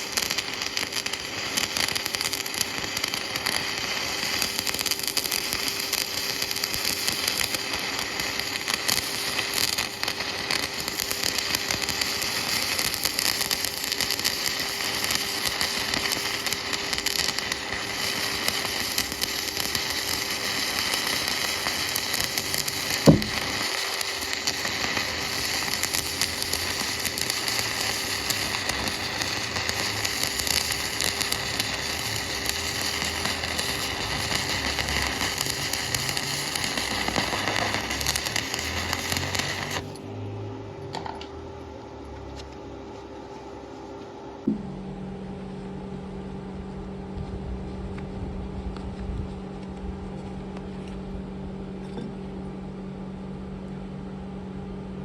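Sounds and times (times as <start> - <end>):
welding arc crackling: 0.0 - 40.0
low steady hum: 39.5 - 55.0.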